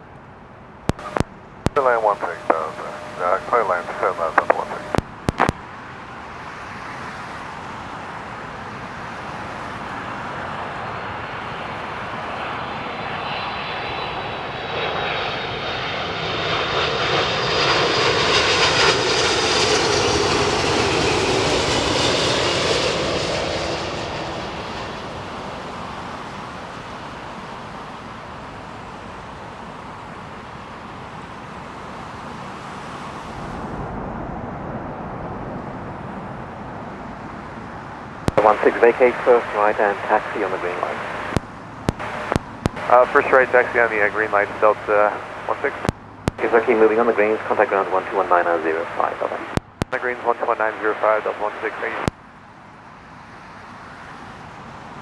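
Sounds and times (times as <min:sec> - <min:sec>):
jet engine whine: 0:00.9 - 0:05.5, 0:09.0 - 0:27.6, 0:38.3 - 0:52.1
jet plane passing low: 0:09.1 - 0:26.4.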